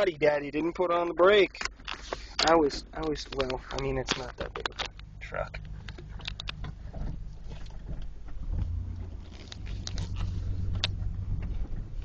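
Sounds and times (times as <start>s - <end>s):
light clicks and rattles: 1.5s - 12.0s
pickup truck engine running: 2.6s - 12.0s.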